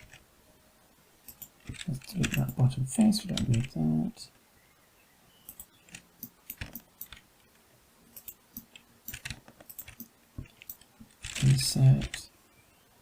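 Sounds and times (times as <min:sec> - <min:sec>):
computer keyboard typing: 0:00.0 - 0:00.2, 0:01.3 - 0:02.6, 0:03.2 - 0:03.8, 0:05.5 - 0:07.2, 0:08.2 - 0:12.2.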